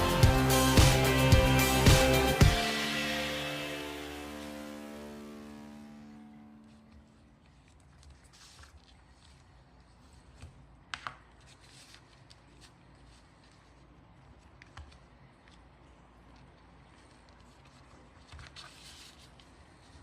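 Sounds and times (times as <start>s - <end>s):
background music: 0.0s - 7.2s
soft handling rustles: 7.0s - 20.0s.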